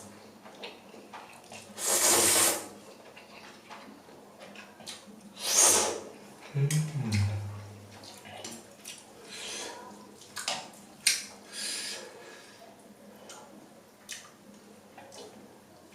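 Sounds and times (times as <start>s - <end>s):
person humming: 6.6s - 8.0s
soft chewing clicks: 13.2s - 15.4s.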